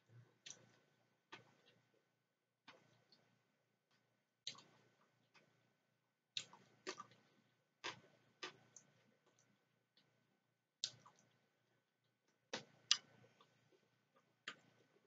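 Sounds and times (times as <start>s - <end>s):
wet lip smacks and clicks: 10.8s - 11.3s.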